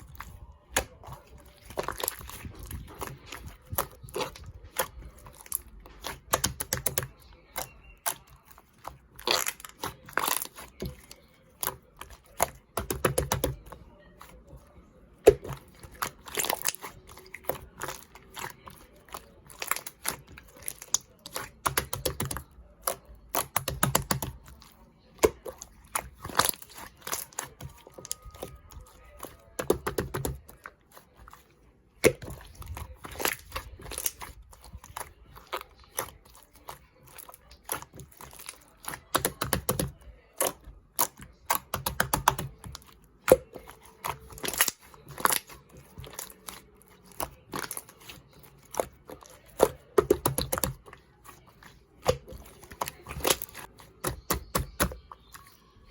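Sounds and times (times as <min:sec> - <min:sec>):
slime squishing with sticky clicks: 0:00.0 - 0:55.9.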